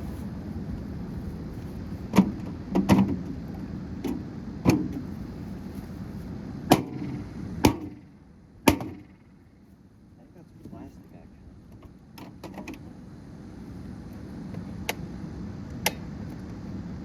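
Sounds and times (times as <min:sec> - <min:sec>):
knocks on microwave parts: 0:06.7 - 0:08.0, 0:08.7 - 0:09.1.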